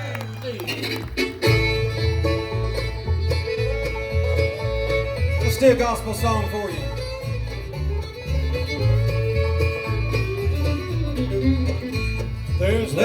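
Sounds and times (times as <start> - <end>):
guitar: 0.0 - 13.0
upright bass: 0.0 - 13.0
fiddle: 0.6 - 13.0
banjo: 0.7 - 13.0.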